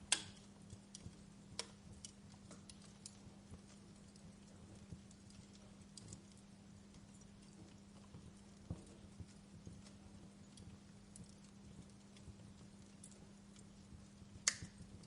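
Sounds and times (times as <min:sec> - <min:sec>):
faint low hum: 0:00.0 - 0:15.0
wood fire crackling: 0:00.0 - 0:15.0.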